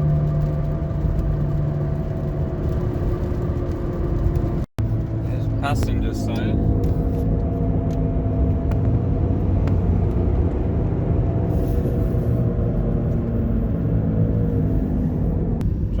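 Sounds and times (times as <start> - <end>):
tyre and road noise: 0.0 - 16.0.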